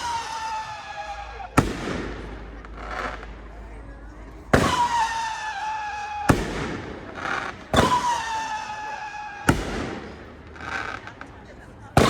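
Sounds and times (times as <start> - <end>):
shrill firework siren whistle: 0.0 - 1.5, 4.6 - 6.4, 7.8 - 9.6
firework sharp bang: 0.0 - 3.5, 4.5 - 11.1.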